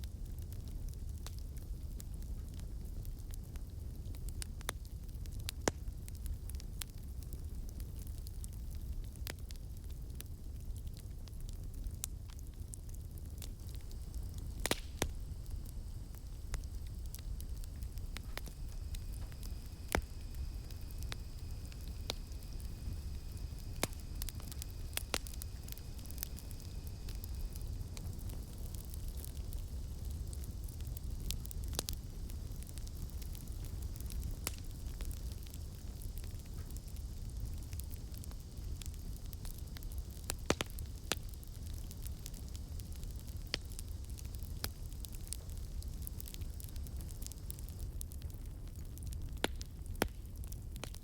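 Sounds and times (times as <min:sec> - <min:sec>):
campfire crackling and popping: 0:00.0 - 0:51.0
low rumble of flames: 0:00.0 - 0:51.0
wood popping: 0:13.7 - 0:26.6
cicadas droning: 0:13.7 - 0:30.3.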